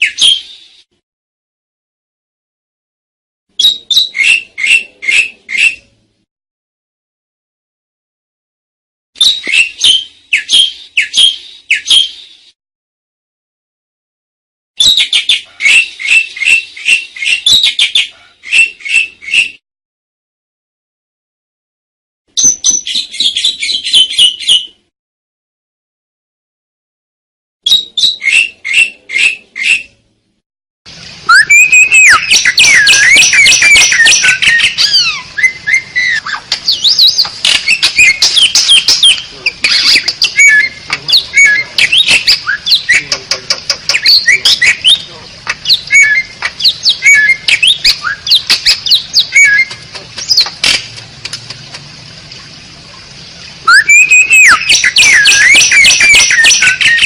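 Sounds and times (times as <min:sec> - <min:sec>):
starling singing: 0:03.6 - 0:05.9, 0:09.2 - 0:12.2, 0:31.3 - 0:50.6, 0:53.6 - 0:57.0
harsh chattering squawks: 0:31.3 - 0:50.8.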